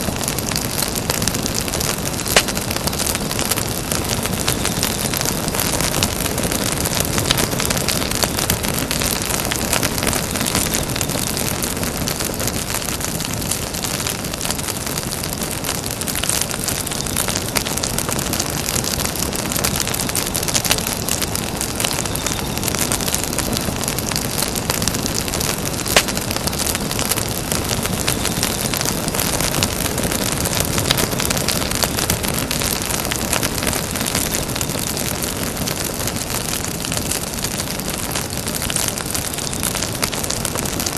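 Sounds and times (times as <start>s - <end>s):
sharp pop from fire: 0.0s - 9.0s, 20.4s - 31.6s
campfire hissing and crackling: 0.0s - 40.9s.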